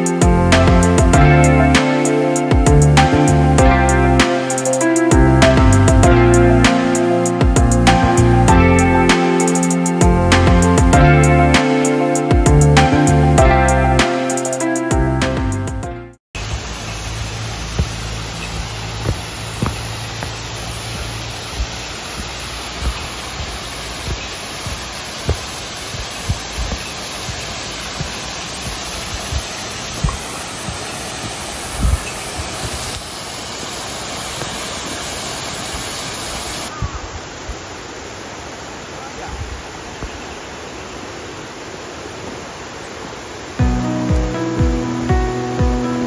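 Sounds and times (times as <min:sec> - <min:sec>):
mountain stream rushing: 0:00.0 - 0:14.9, 0:16.4 - 0:46.0
water splashes: 0:16.4 - 0:43.6.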